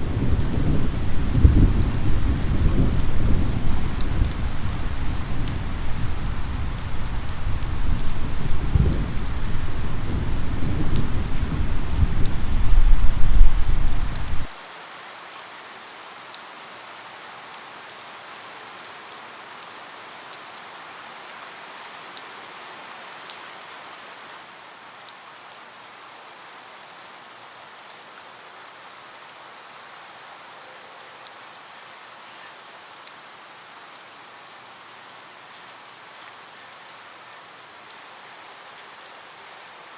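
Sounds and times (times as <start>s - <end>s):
low thunder rumble: 0.0s - 14.5s
steady rain with drips: 0.0s - 39.9s.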